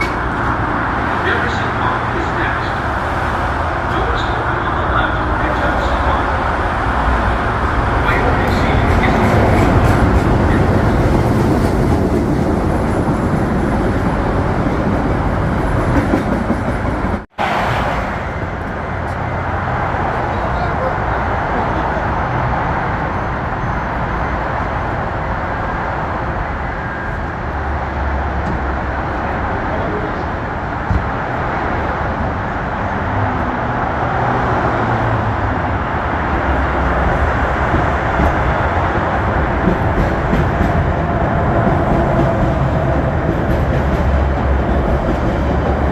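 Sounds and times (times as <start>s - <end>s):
train passing with wheel noise: 0.0s - 45.9s.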